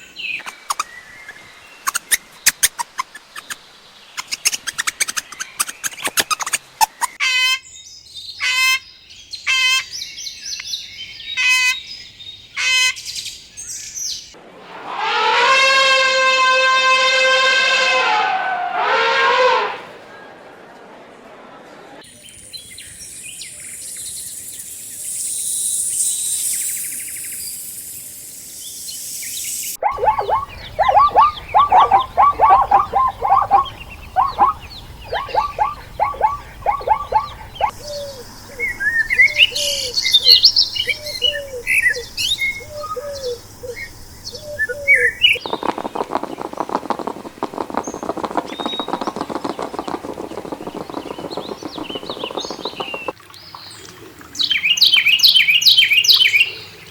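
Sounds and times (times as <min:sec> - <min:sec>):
high bird chirps: 0:22.7 - 0:53.2
high hiss: 0:23.6 - 0:29.8, 0:45.2 - 0:53.1
falling bird calls: 0:29.8 - 0:53.2
dense rapid buzzing: 0:45.4 - 0:53.1.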